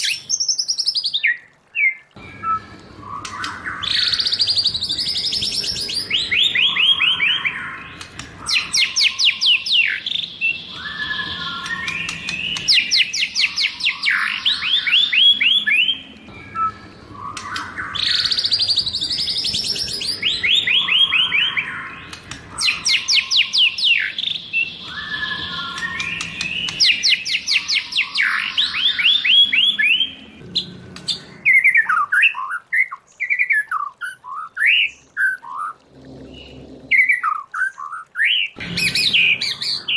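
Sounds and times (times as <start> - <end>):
bird singing whistled trills: 0.0 - 30.4.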